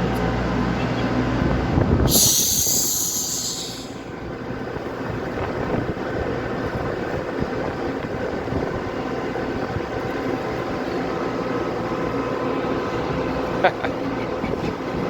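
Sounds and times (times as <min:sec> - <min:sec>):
high wavering squeal: 0:02.1 - 0:04.1.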